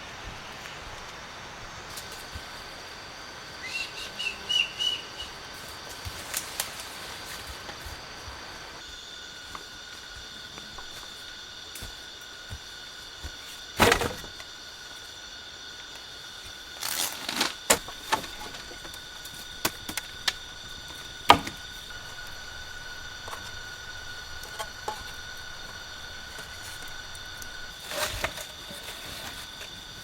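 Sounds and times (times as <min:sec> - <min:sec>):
high-pitched insect drone: 0:00.4 - 0:30.0
sharp knocks and cracks: 0:13.8 - 0:14.4, 0:21.3 - 0:21.7.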